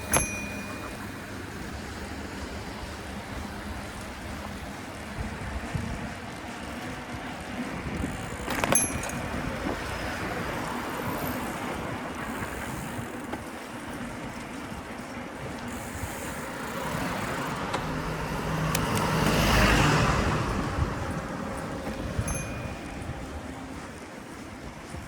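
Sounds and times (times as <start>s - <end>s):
city road traffic: 0.0s - 25.0s
car passing close by: 16.3s - 22.4s.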